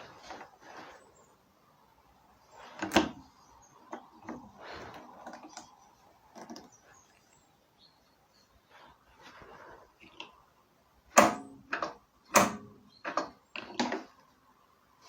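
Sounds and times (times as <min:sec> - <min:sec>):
clicks and knocks: 0:11.2 - 0:14.1.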